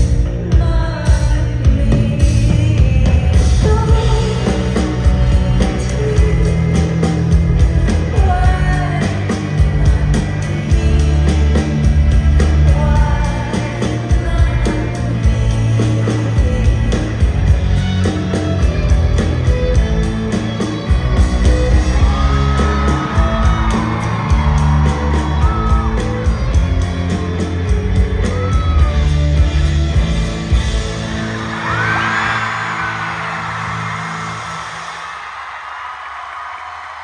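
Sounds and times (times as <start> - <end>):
singer's lead vocal: 0.0 - 29.5
steady drum beat: 0.0 - 32.5
live band playing: 0.0 - 32.6
heavy bass: 0.0 - 34.9.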